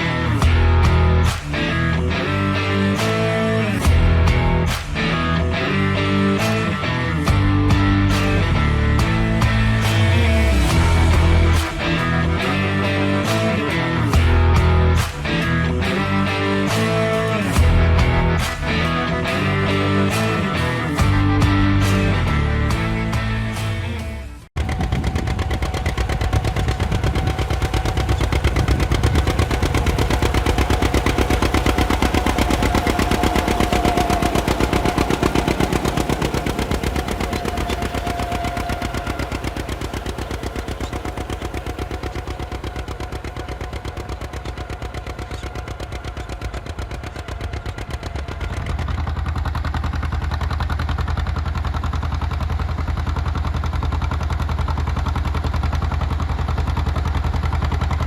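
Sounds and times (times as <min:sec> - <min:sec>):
tractor engine popping: 0:00.0 - 0:24.0, 0:24.6 - 0:58.0.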